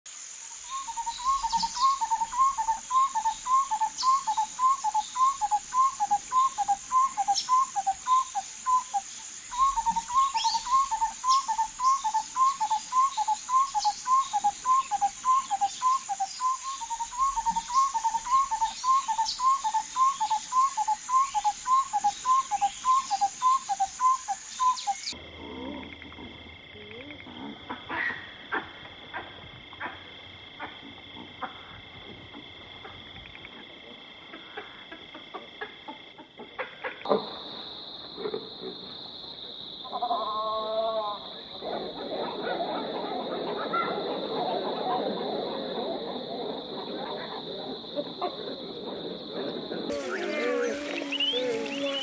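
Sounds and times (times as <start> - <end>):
high insect drone: 0.1 - 27.6, 49.1 - 52.0.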